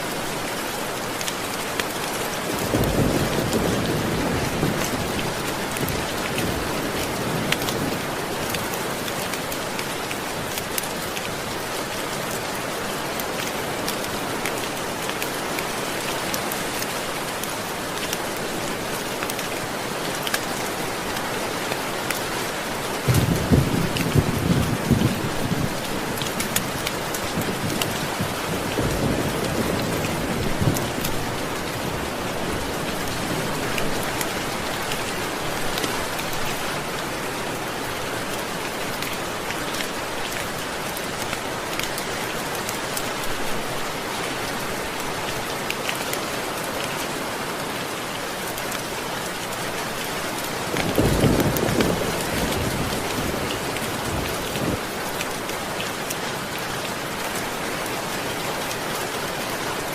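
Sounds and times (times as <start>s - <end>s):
steady rain falling: 0.0s - 59.9s
thunder rumbling: 23.1s - 25.8s.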